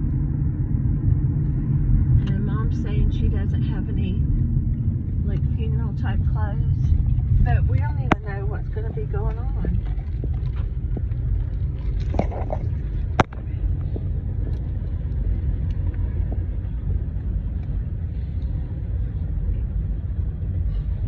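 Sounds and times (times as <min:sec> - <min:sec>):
low vehicle rumble: 0:00.0 - 0:21.0.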